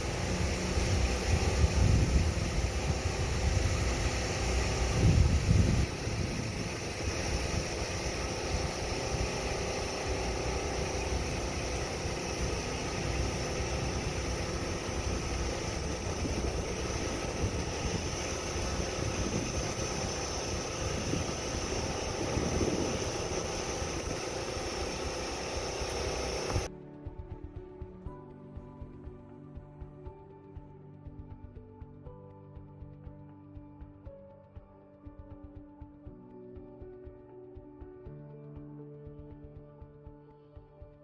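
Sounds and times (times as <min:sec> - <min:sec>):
engine-like drone: 0:00.0 - 0:26.7
low rumble: 0:00.0 - 0:26.7.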